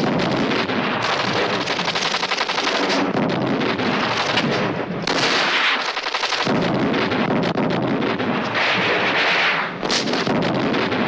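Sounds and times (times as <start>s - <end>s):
rapid automatic gunfire: 0.0s - 11.0s.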